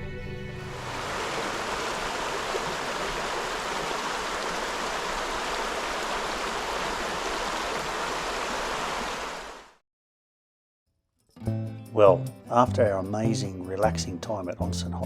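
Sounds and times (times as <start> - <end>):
water flowing: 0.6 - 9.8.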